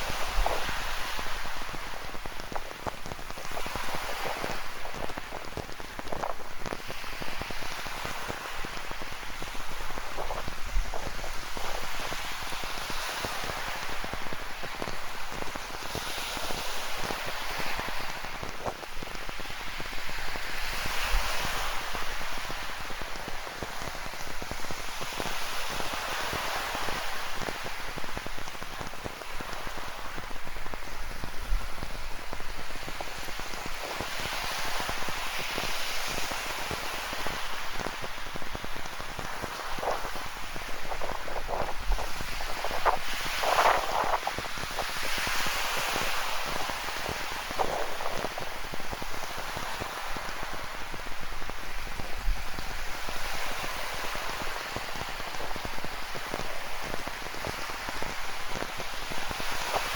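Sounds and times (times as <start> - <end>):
ocean surf on rocky shore: 0.0 - 59.9.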